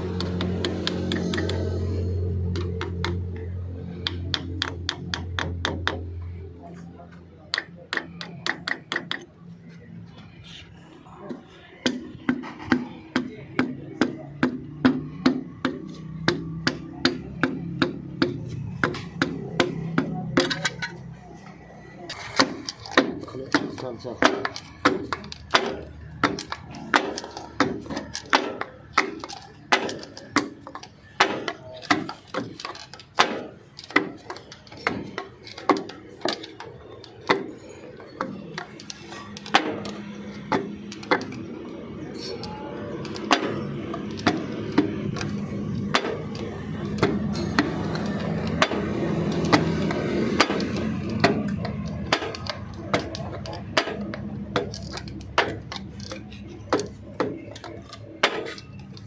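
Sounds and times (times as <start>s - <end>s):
hammer tapping on metal: 0.1s - 6.2s, 7.5s - 9.3s.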